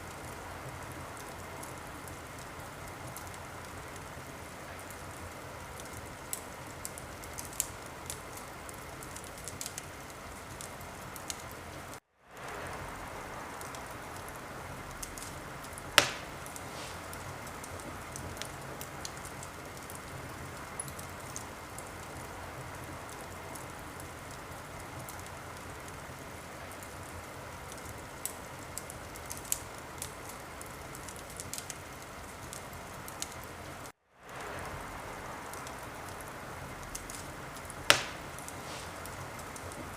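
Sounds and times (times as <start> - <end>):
wood fire crackling: 0.0 - 39.9
sharp loud pop: 16.0 - 17.0, 37.9 - 38.9.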